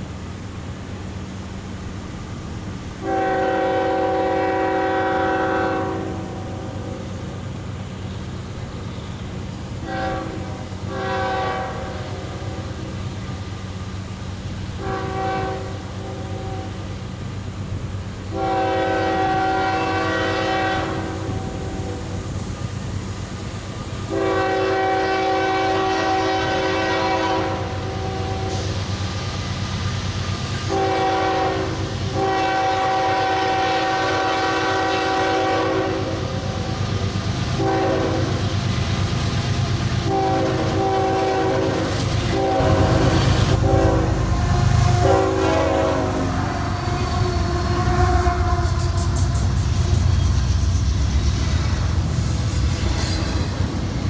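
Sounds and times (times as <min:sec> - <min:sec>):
diesel locomotive rumble: 0:00.0 - 0:54.0
locomotive air horn blasts: 0:03.0 - 0:06.5, 0:09.8 - 0:12.6, 0:14.8 - 0:16.8, 0:18.3 - 0:21.9, 0:24.1 - 0:28.6, 0:30.7 - 0:36.1, 0:37.6 - 0:38.2, 0:40.1 - 0:54.0
wheels clacking on rails: 0:41.9 - 0:54.0.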